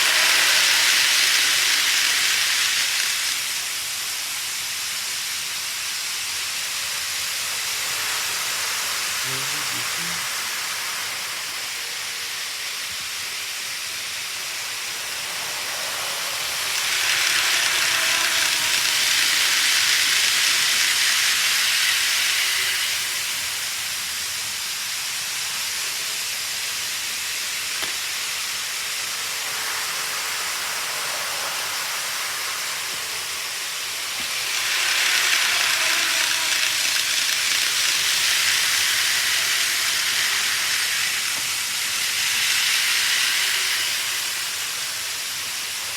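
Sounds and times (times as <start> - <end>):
faint motor whine: 0.0 - 45.9
model train rolling hiss: 0.0 - 45.9.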